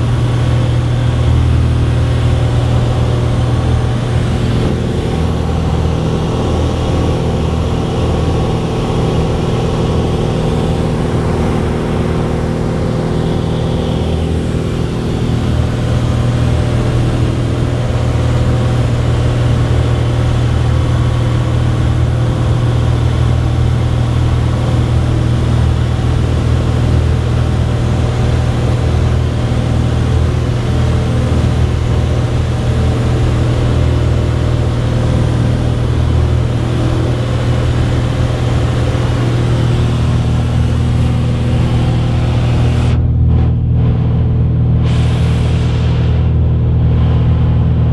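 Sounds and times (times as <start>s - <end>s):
propeller plane engine running: 0.0s - 47.9s.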